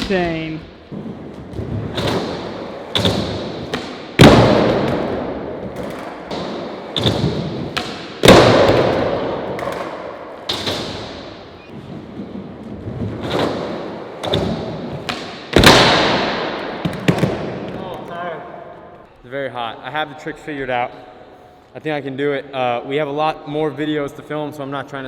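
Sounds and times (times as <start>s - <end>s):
skateboard wheels rolling: 0.9s - 16.0s.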